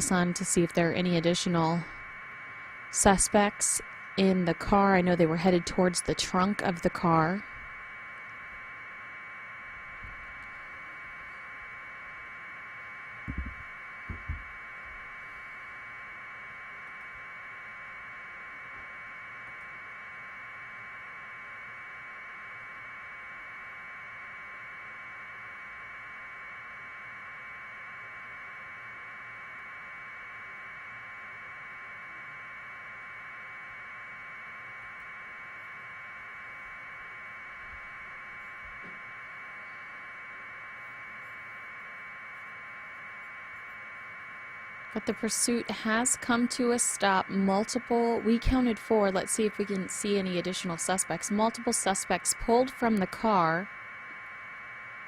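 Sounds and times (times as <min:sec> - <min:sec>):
thin electronic hiss: 0:07.2 - 0:45.0
dull knocks: 0:13.3 - 0:14.5.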